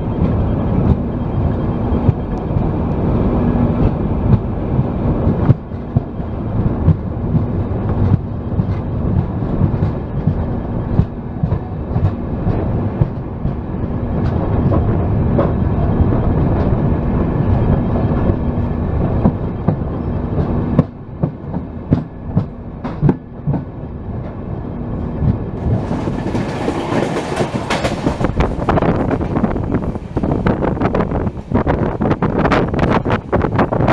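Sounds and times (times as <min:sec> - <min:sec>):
train rumbling on rails: 0:00.0 - 0:33.9
wheels clacking over rail joints: 0:25.1 - 0:33.1.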